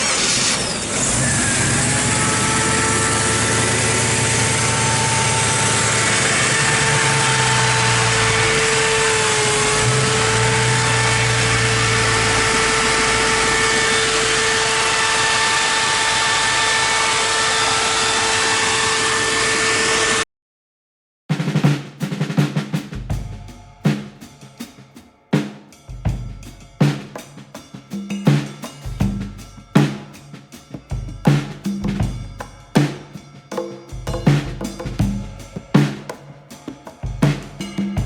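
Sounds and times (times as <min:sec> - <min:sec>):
steady engine whine: 0:00.0 - 0:20.2.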